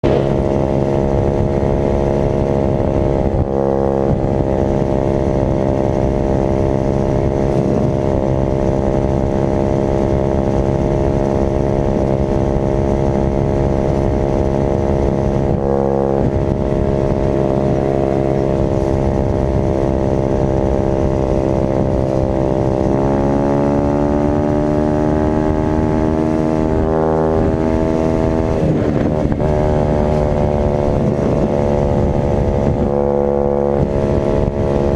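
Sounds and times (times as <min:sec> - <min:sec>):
dirt bike engine running: 0:00.0 - 0:34.9.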